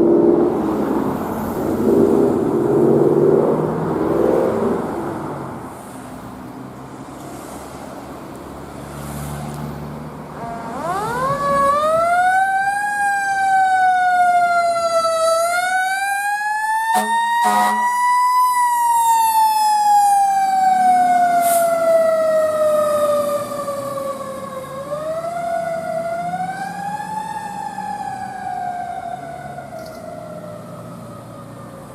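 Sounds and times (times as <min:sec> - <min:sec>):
vehicle engine rumbling: 0:00.0 - 0:15.4
fire truck siren wailing: 0:10.3 - 0:31.9
sharp siren burst: 0:10.4 - 0:24.1.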